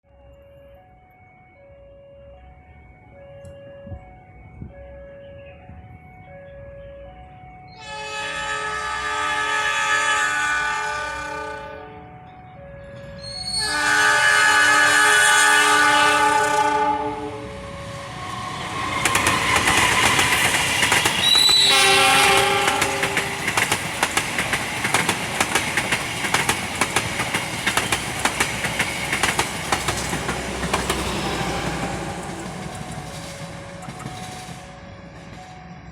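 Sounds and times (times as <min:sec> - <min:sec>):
train horn: 0:06.3 - 0:23.7, 0:29.9 - 0:35.6
train wheels clickety-clack: 0:18.4 - 0:35.9.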